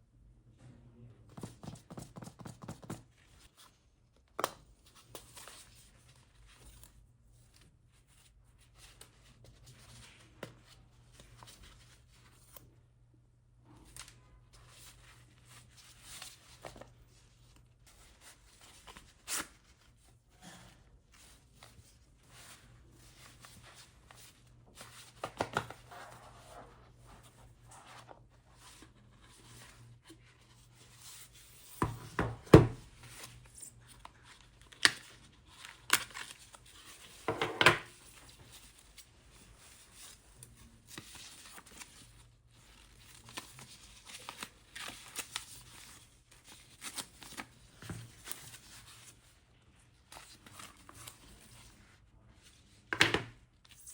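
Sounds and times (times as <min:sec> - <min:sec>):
cardboard and paper rustling: 0:13.8 - 0:53.9.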